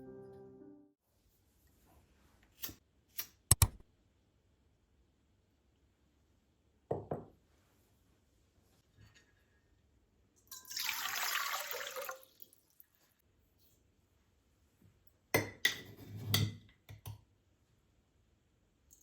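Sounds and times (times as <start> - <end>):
water running: 10.5 - 12.9.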